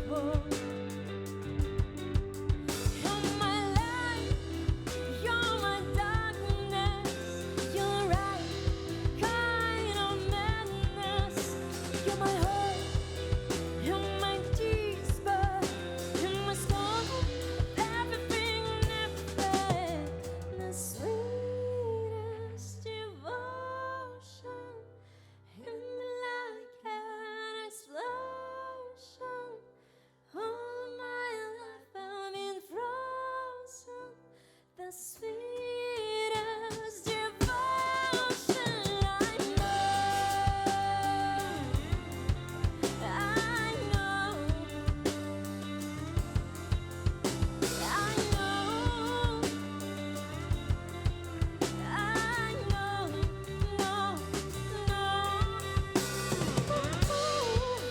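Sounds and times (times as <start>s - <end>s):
live band playing: 0.0s - 20.5s, 37.4s - 57.9s
drum kit: 0.0s - 21.2s, 36.0s - 57.9s
bass notes: 0.0s - 23.2s, 39.1s - 57.9s.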